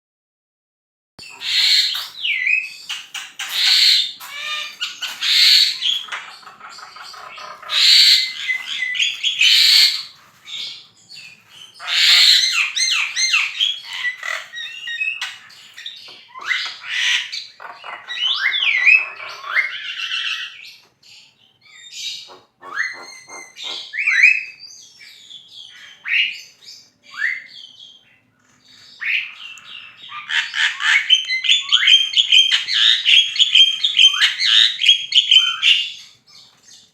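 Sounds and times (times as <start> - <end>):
myna chattering and whistling: 22.3 - 24.6.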